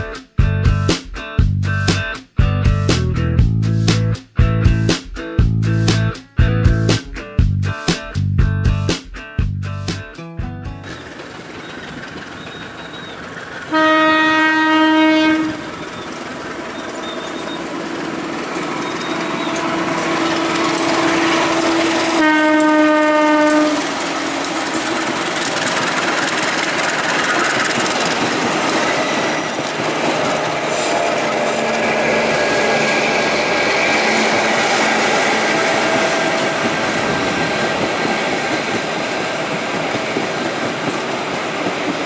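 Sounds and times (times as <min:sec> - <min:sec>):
train rolling on rails: 0:10.8 - 0:42.0
diesel locomotive horn blasts: 0:13.7 - 0:17.8, 0:18.8 - 0:24.5, 0:29.0 - 0:37.6.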